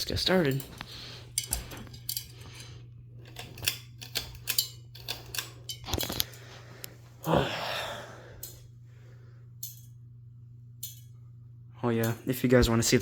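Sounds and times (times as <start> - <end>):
pull chain clicking and rattling: 0.0 - 6.3
steady low hum: 0.0 - 13.0.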